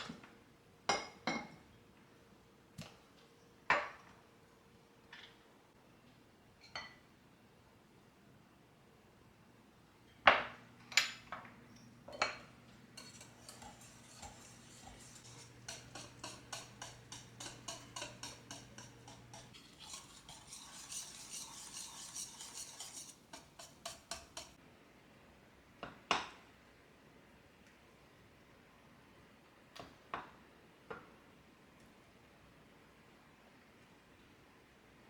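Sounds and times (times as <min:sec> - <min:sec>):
faint low appliance hum: 0:00.0 - 0:35.0
utensil clinking against dishes: 0:12.1 - 0:24.6
utensil stirring in a bowl: 0:12.1 - 0:24.6.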